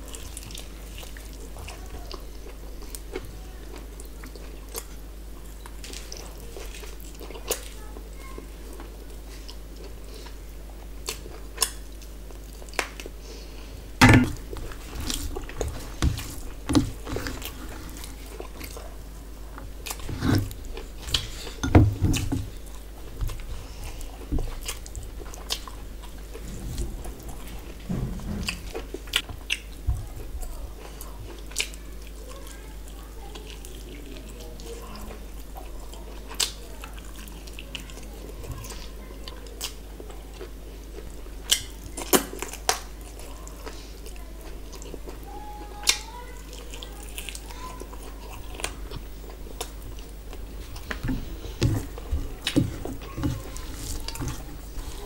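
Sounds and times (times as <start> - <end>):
chewing with wet mouth clicks: 8.8 - 13.2, 22.7 - 26.2, 29.1 - 29.8, 30.8 - 32.2, 33.3 - 51.1
steady low hum: 8.8 - 30.2, 47.8 - 55.0
fingers mixing food on steel plate: 14.2 - 18.8, 47.2 - 55.0.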